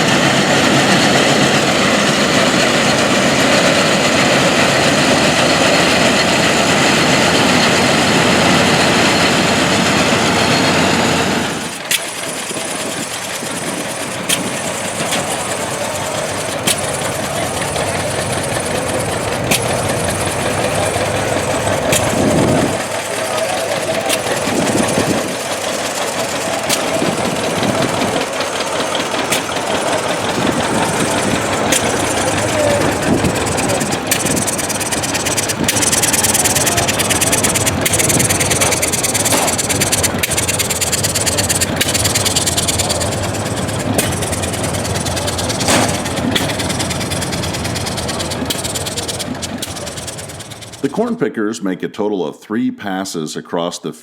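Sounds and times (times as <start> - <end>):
tractor and harvesting machinery: 0.0 - 51.2
sharp clicks: 11.7 - 50.9.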